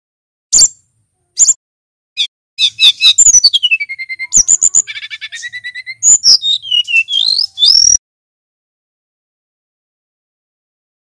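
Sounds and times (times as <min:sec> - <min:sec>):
bird singing: 0:02.2 - 0:08.0.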